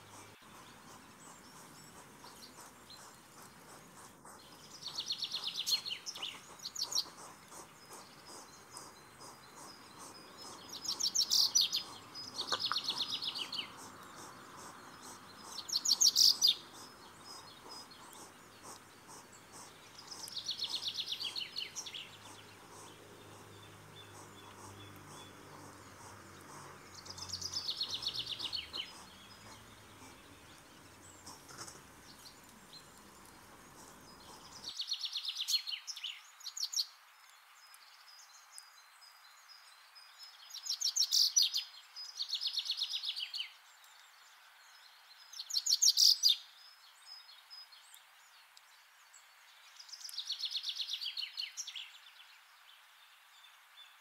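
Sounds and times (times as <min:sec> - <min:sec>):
birds singing high trills: 0:00.0 - 0:33.5
faint background noise: 0:00.0 - 0:54.0.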